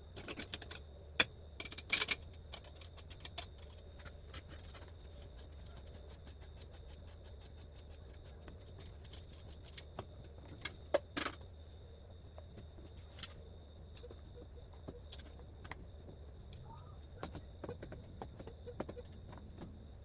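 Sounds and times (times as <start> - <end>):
faint hum: 0.0 - 20.0
small clicks and clinks: 0.2 - 11.4.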